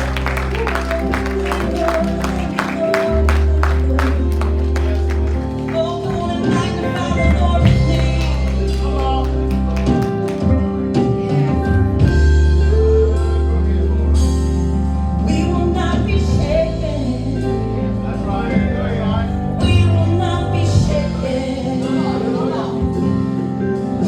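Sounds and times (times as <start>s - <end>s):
gospel band music: 0.0s - 24.0s
people singing: 19.7s - 23.4s.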